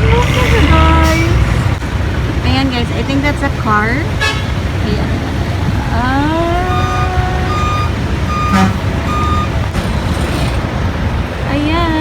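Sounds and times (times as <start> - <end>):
low rumble of vehicles: 0.0 - 12.0
short high beeps: 6.7 - 9.6.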